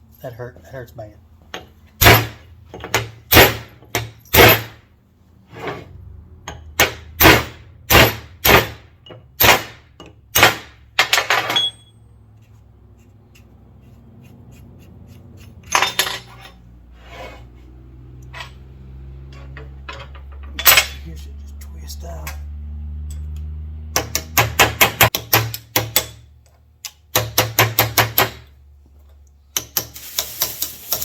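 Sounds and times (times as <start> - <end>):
hammer striking chisel on metal: 1.5 - 4.8, 6.4 - 11.9, 23.0 - 28.5, 29.5 - 31.0
handling sounds: 29.9 - 31.0.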